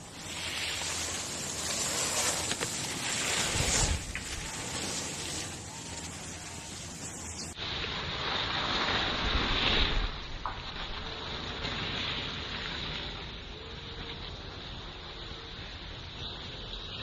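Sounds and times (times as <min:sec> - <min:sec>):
skis sliding over snow: 0:00.0 - 0:15.4
wind rushing: 0:00.7 - 0:06.3.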